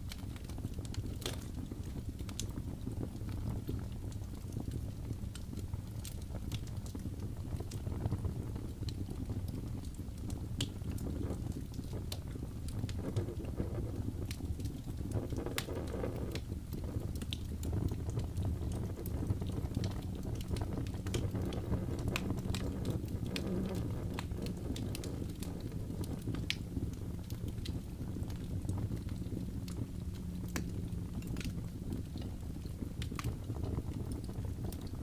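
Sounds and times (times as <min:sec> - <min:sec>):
wood fire crackling: 0:00.0 - 0:35.0.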